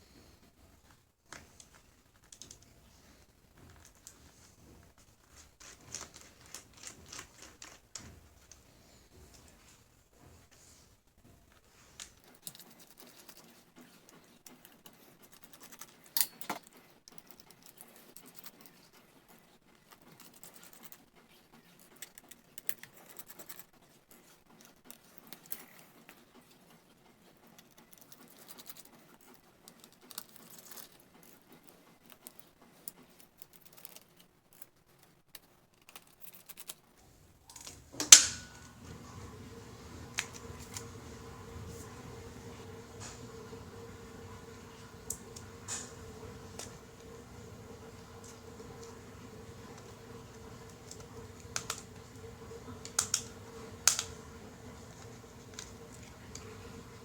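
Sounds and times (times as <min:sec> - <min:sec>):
hands working on laptop: 0:00.9 - 0:13.3, 0:37.0 - 0:57.0
steady low hum: 0:37.0 - 0:57.0.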